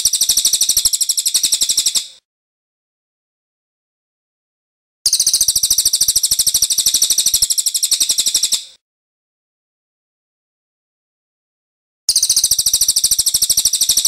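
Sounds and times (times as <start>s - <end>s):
songbird rattling trill: 0.0s - 2.2s, 5.1s - 8.8s, 12.1s - 14.0s.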